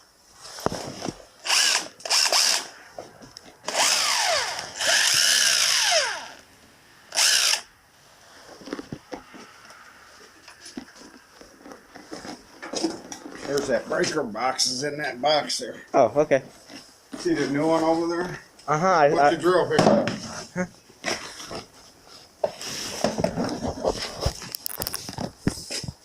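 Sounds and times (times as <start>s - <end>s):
electric power drill bursts: 1.4s - 2.8s, 3.6s - 6.4s, 7.1s - 7.7s.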